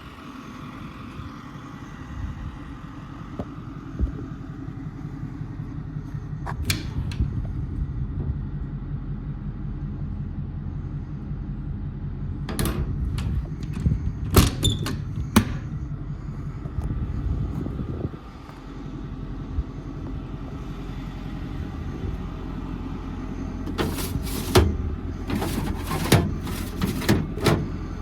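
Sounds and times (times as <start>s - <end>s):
diesel engine idling: 0.0s - 6.5s, 7.2s - 14.2s, 15.0s - 28.0s
door or latch clunks: 12.5s - 15.7s, 23.7s - 27.8s.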